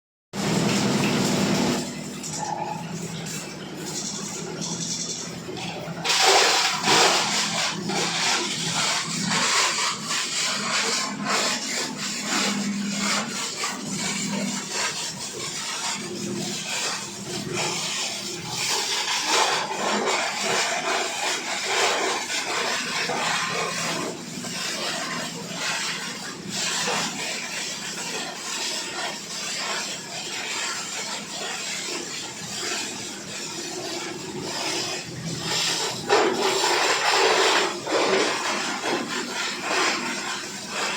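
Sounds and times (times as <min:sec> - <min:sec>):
plastic bottles crunching in grinder: 0:03.9 - 0:24.2, 0:32.0 - 0:40.9.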